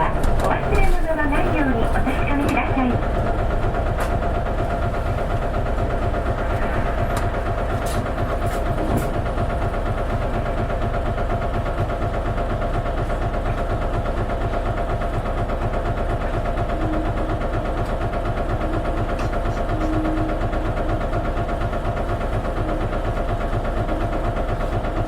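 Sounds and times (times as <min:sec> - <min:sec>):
bus diesel engine running: 0:00.0 - 0:25.0.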